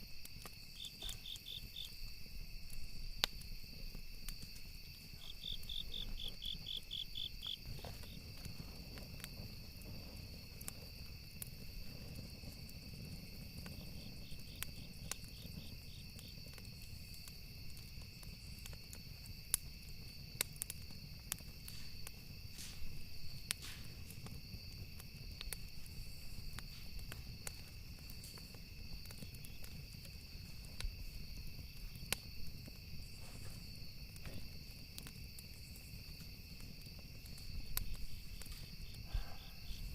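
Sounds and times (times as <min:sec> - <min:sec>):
campfire wood crackling: 0:00.0 - 0:39.9
insect chirping: 0:00.0 - 0:39.9.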